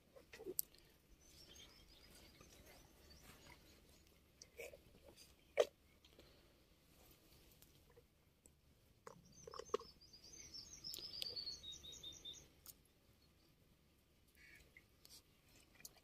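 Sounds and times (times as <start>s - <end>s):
small bird singing: 1.2s - 4.0s, 9.1s - 13.3s.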